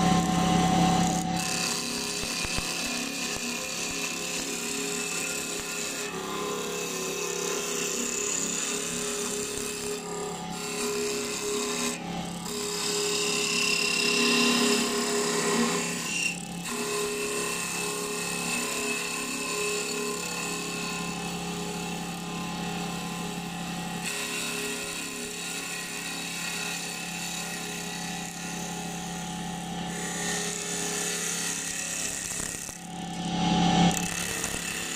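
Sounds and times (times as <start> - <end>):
tool scraping spinning wood: 0.0 - 21.4, 29.9 - 34.9
lathe motor hum: 0.0 - 33.3.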